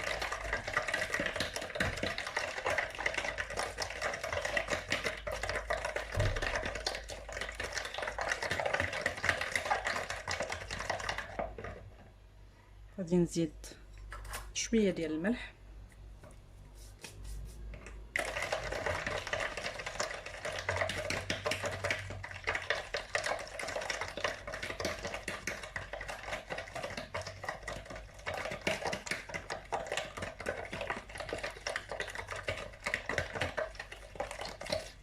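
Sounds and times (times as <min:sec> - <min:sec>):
whisk scraping a mixing bowl: 0:18.2 - 0:35.0.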